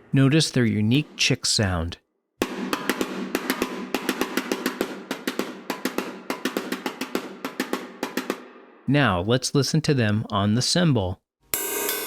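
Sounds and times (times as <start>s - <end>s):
drum rods playing snare drum: 2.4s - 8.5s.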